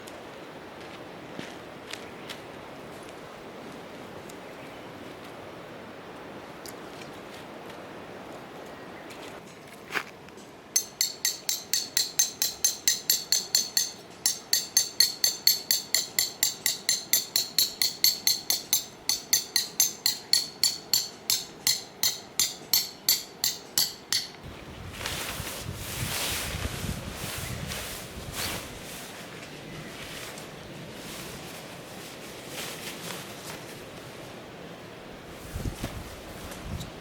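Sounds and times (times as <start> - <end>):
hammer striking metal tent pegs: 10.8 - 24.4.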